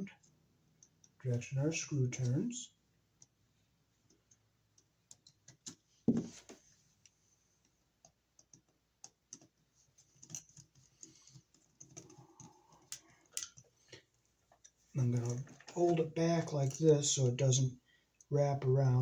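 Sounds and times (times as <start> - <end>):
knock: 6.1 - 6.4.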